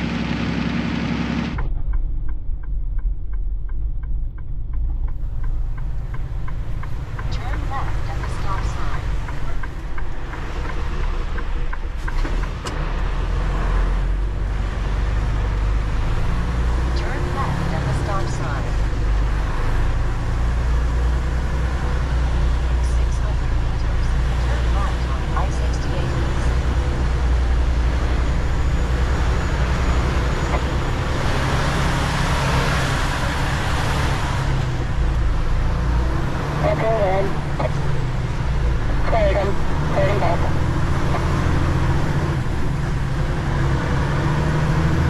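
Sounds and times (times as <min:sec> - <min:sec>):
truck engine rumbling: 0:00.0 - 0:45.0
light ticks: 0:01.9 - 0:12.8.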